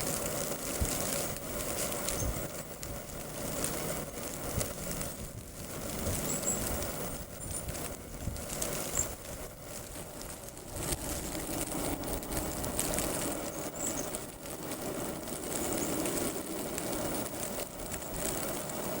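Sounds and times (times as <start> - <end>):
high thin bird calls: 6.2 - 6.7, 13.4 - 14.2.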